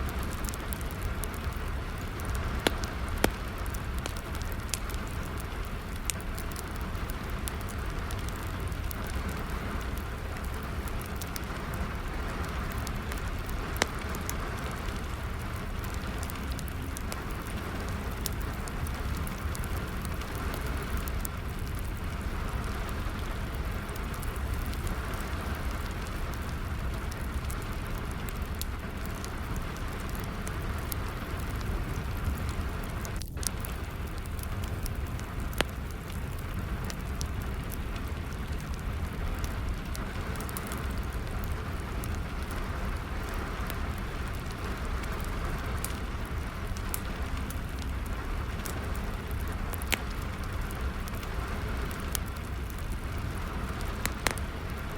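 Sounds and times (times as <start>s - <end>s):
steady rain: 0.0s - 54.9s
wood fire crackling: 0.0s - 54.9s.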